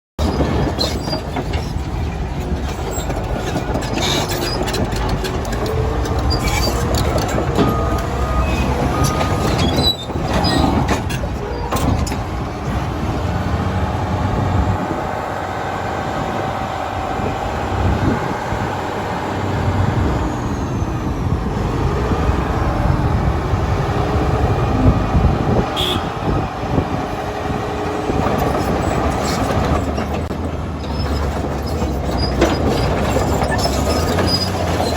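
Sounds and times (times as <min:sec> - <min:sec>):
steel tracks clanking and squealing: 0:00.2 - 0:13.9, 0:24.3 - 0:34.9
bulldozer diesel engine under load: 0:00.2 - 0:34.9.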